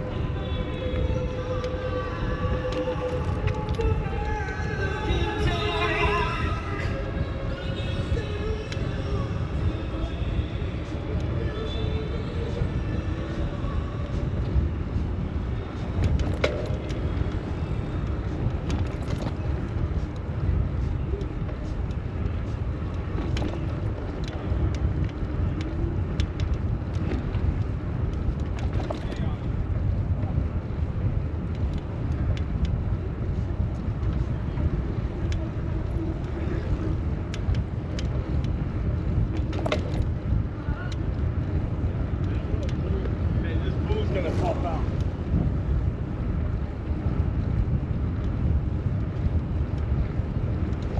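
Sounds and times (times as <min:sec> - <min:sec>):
city road traffic: 0:00.0 - 0:50.9
wind rumble on microphone: 0:00.0 - 0:50.9.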